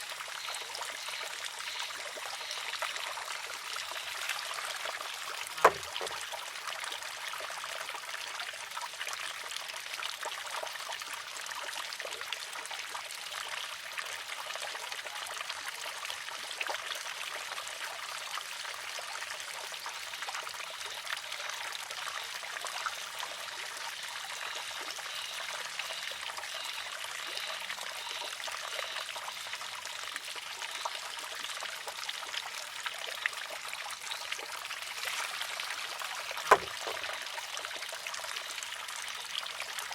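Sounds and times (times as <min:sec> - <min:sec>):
small splashes and drips: 0:00.0 - 0:06.6, 0:32.7 - 0:39.8
water trickling from a spout: 0:00.0 - 0:39.9.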